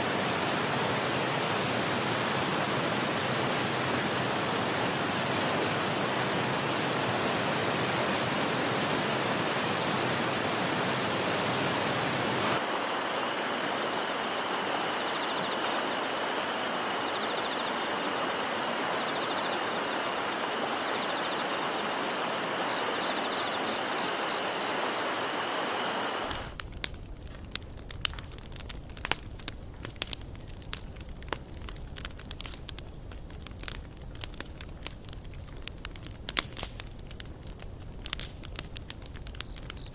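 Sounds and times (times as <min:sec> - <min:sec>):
stream water rushing: 0:00.0 - 0:26.6
faint high chirping: 0:13.2 - 0:25.5
campfire crackling and popping: 0:26.2 - 0:39.9.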